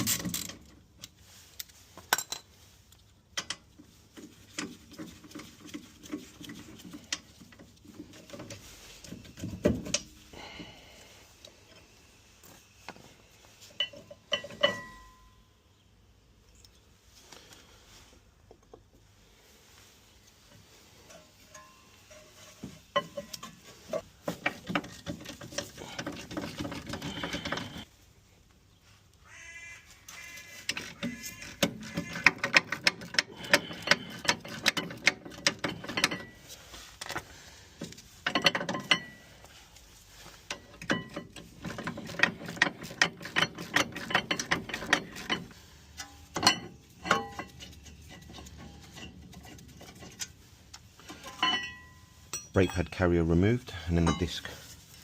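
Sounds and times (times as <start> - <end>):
metal clinks and knocks: 2.0 - 2.6, 13.6 - 15.5, 21.0 - 27.9, 30.7 - 37.2, 37.8 - 53.1, 54.0 - 54.6.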